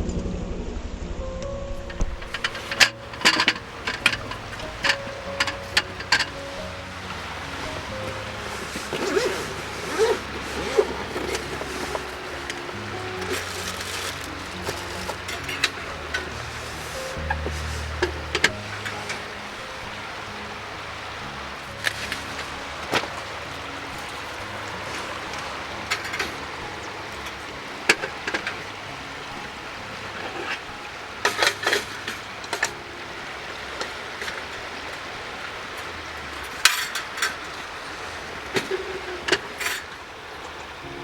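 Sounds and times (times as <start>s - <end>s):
steady hiss: 0.6s - 41.0s
cookware and utensils clinking: 1.8s - 20.4s, 35.8s - 37.7s.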